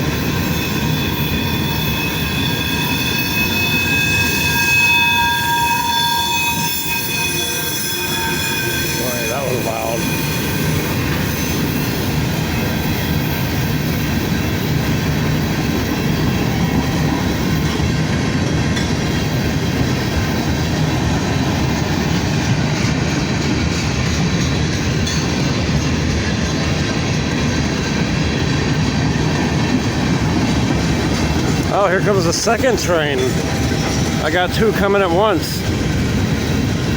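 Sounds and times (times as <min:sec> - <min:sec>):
freight train wheels rumbling: 0:00.0 - 0:36.9.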